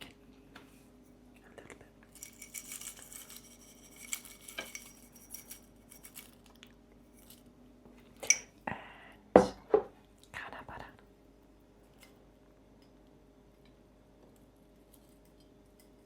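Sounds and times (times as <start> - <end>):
cutlery and dishes clinking: 2.1 - 6.3.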